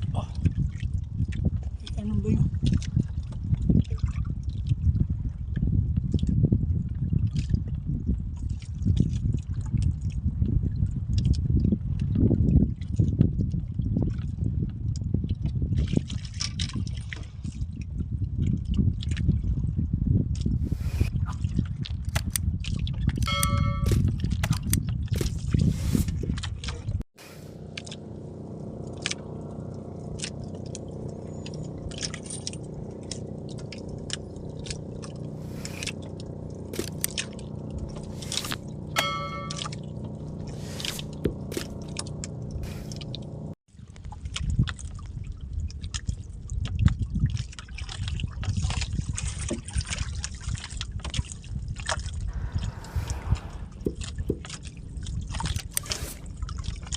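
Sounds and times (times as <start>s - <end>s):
water sloshing and splashing: 0.0s - 14.4s, 15.0s - 56.9s
brief high tone: 23.3s - 23.9s, 39.0s - 39.8s
small engine running: 27.2s - 43.6s.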